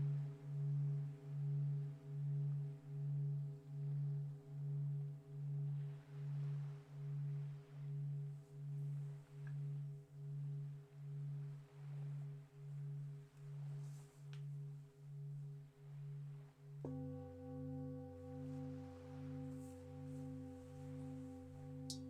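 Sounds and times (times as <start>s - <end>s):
singing bowl ringing: 14.6s - 22.0s.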